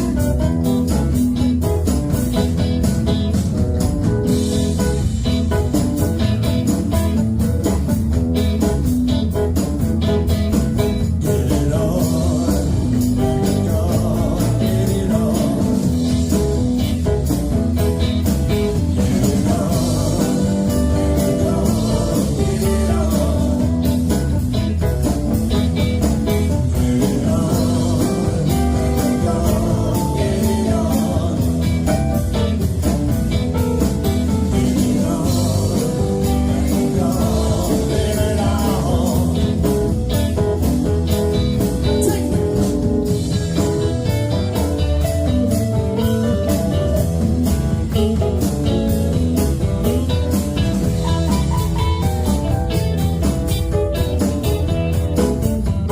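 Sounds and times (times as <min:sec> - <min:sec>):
live blues-rock band: 0:00.0 - 0:55.9.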